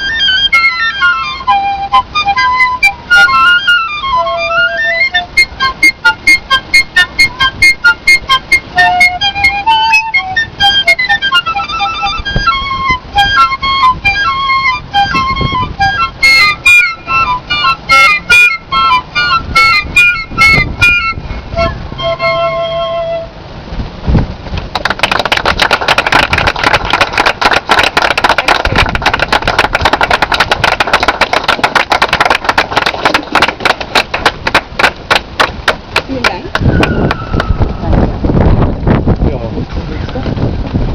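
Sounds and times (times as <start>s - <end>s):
piccolos playing high notes: 0.0s - 23.6s
audience applause: 24.7s - 35.8s.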